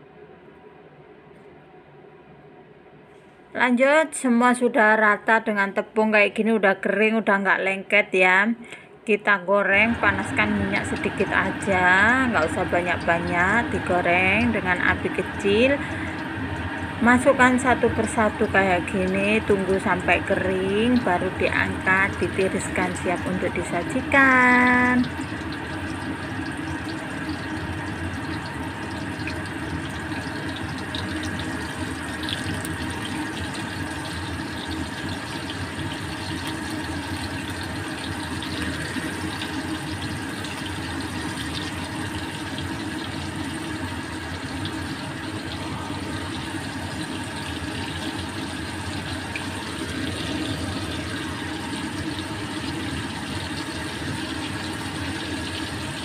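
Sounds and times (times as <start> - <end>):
faint steady hum: 0.0 - 56.0
liver sizzling in a wok: 21.8 - 56.0.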